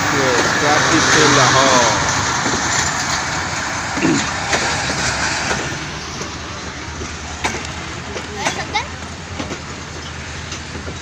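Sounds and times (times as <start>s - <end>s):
distant voice: 0.0s - 2.4s
train rumbling: 0.0s - 11.0s.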